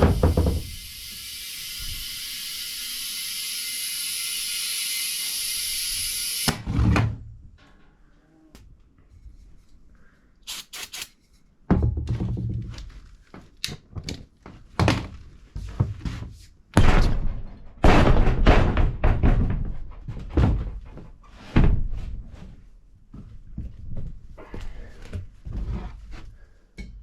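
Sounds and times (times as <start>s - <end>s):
sharp clicks: 10.5s - 11.2s
heavy thunks and knocks: 11.7s - 12.8s, 16.8s - 20.9s.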